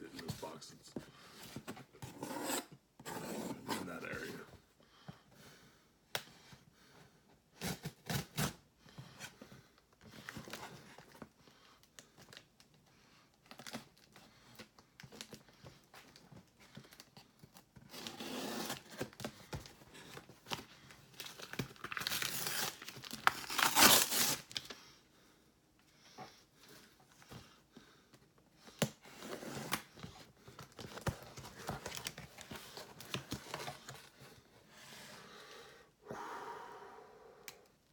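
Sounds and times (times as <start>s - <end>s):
packing material crinkling: 21.1s - 24.8s
packing material tearing: 21.2s - 24.7s.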